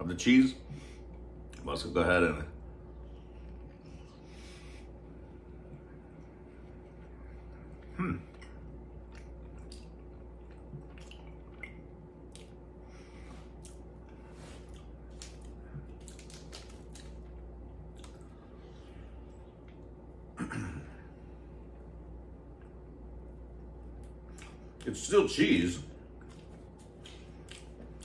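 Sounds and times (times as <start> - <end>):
man chewing wetly: 5.6 - 20.0, 23.5 - 24.9, 26.1 - 28.0.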